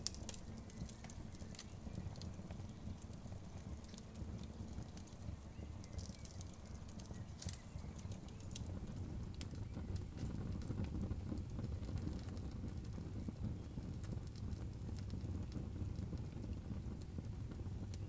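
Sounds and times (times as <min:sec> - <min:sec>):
logs popping and snapping: 0:00.0 - 0:09.0
low fire rumble: 0:00.0 - 0:18.0.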